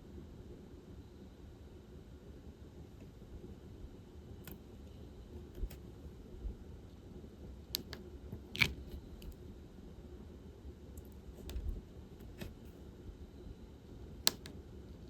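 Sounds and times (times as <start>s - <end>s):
plastic clicks and taps: 7.8s - 9.4s, 11.4s - 12.7s, 14.3s - 14.6s.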